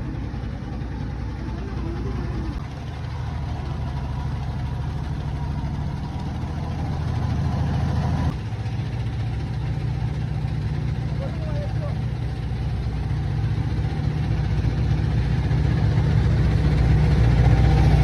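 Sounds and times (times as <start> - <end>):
engine running with low drone: 0.0 - 18.0
faint voice: 11.1 - 12.1.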